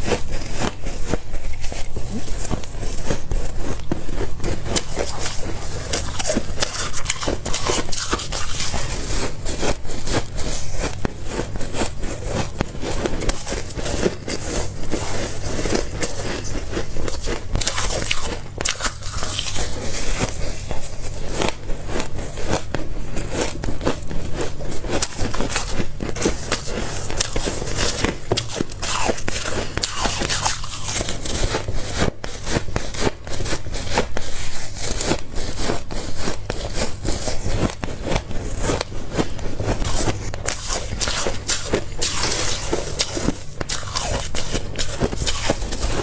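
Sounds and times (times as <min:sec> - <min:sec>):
person chewing ice crunching: 0:00.0 - 0:46.0.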